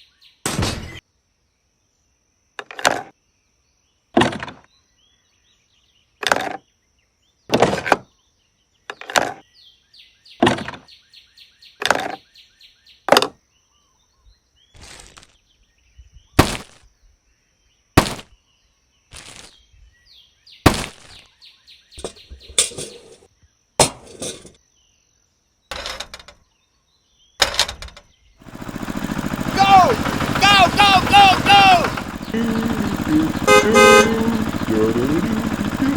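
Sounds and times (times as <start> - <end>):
birds chirping: 20.0 - 23.2, 28.2 - 35.9.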